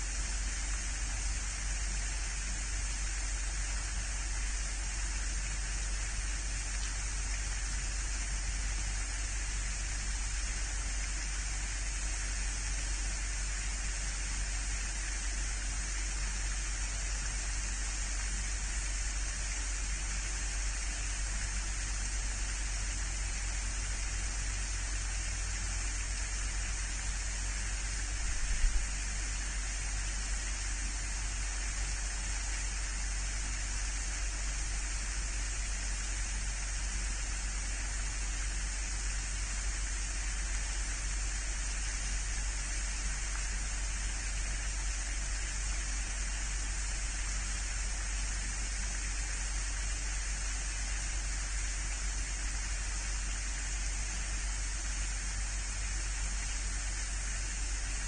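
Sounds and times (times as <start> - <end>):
steady hiss: 0.0 - 58.0.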